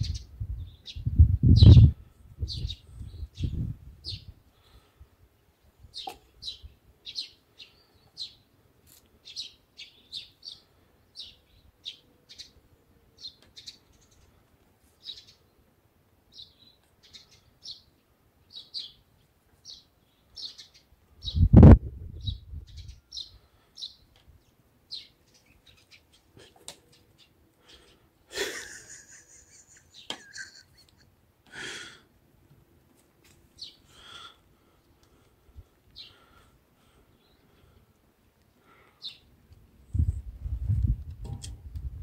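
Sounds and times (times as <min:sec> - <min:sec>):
small bird chirping: 0:00.0 - 0:04.3, 0:05.8 - 0:12.6, 0:13.2 - 0:14.4, 0:15.0 - 0:15.6, 0:16.3 - 0:28.0.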